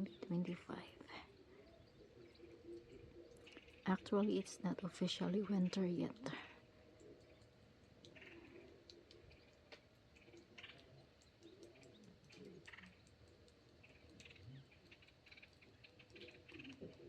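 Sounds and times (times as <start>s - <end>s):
soft ticks: 6.9s - 17.0s.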